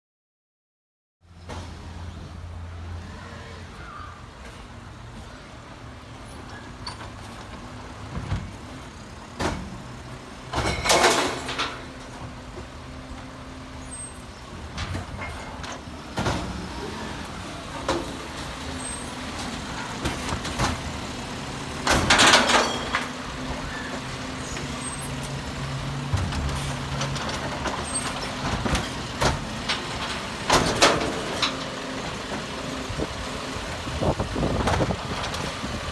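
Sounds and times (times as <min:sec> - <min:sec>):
garbage truck engine running: 0:01.4 - 0:35.9
knocks and clunks: 0:06.7 - 0:13.5, 0:14.4 - 0:32.6, 0:33.8 - 0:35.8.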